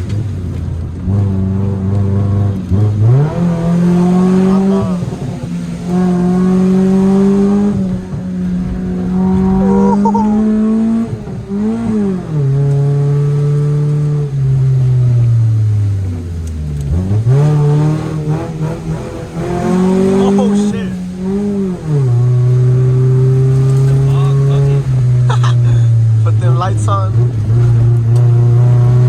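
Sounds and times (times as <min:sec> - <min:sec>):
car engine revving through gears: 0:00.0 - 0:29.0.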